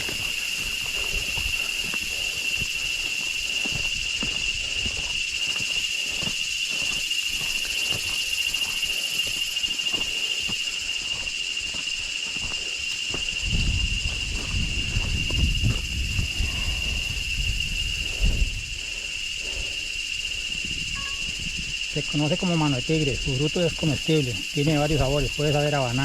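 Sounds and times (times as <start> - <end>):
footsteps on trail: 0.0 - 26.0
high-pitched insect drone: 0.0 - 26.0.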